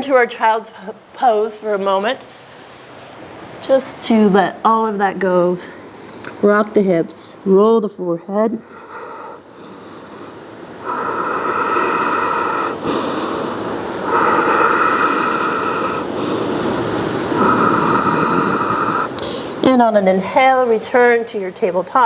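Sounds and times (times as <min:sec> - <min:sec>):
person breathing slowly: 0:08.6 - 0:19.6.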